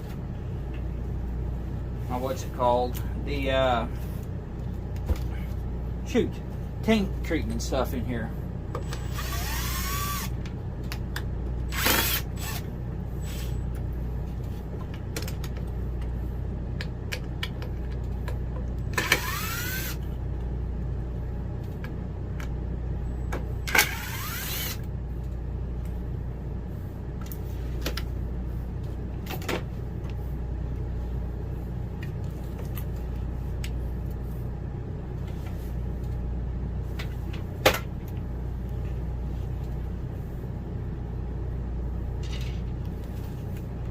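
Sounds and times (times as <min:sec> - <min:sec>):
low hum: 0:00.0 - 0:43.9
cordless drill spinning up: 0:08.8 - 0:10.3, 0:11.7 - 0:12.6, 0:18.9 - 0:20.0, 0:23.7 - 0:24.8.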